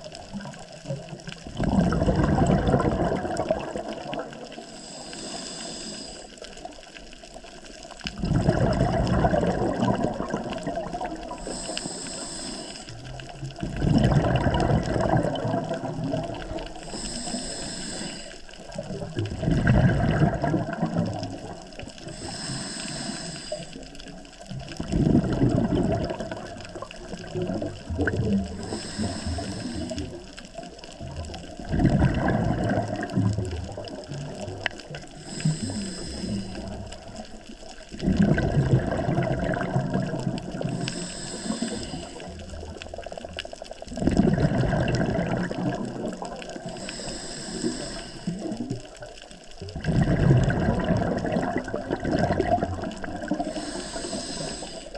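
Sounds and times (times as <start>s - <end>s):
exhaled bubbles gurgling: 0.0s - 54.9s
diver inhaling through regulator: 4.5s - 6.5s, 11.3s - 13.1s, 16.4s - 18.8s, 22.0s - 24.1s, 28.4s - 30.6s, 35.1s - 37.2s, 40.5s - 42.6s, 46.6s - 48.8s, 52.9s - 54.9s.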